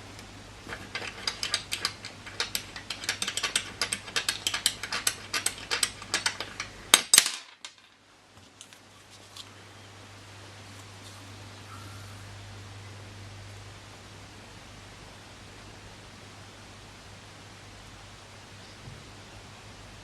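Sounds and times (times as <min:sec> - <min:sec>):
clicking and rattling of handled burner: 0:00.1 - 0:07.8.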